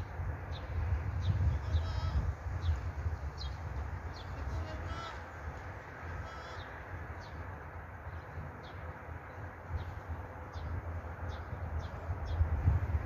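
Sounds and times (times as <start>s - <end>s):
gusty low rumble: 0.0s - 4.9s, 10.8s - 13.0s.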